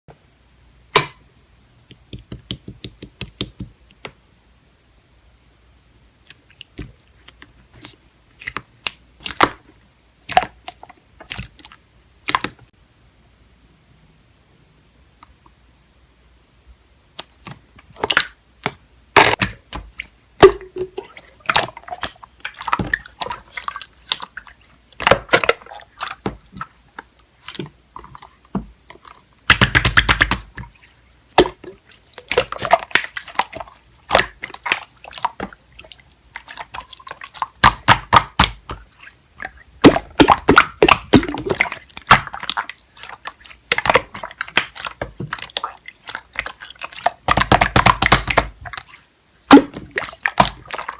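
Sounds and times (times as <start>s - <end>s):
slime squelching and popping: 6.2s - 12.7s, 17.1s - 50.9s.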